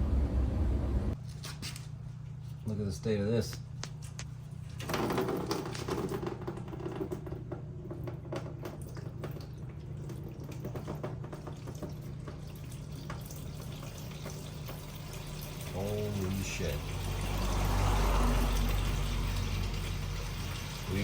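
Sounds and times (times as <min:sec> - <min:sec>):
steady low hum: 0:00.0 - 0:04.8
liquid dripping and trickling: 0:08.0 - 0:21.0.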